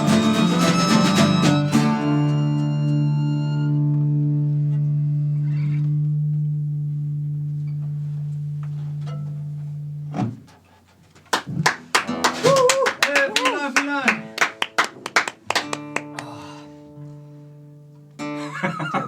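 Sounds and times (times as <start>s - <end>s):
people clapping: 11.3s - 16.6s.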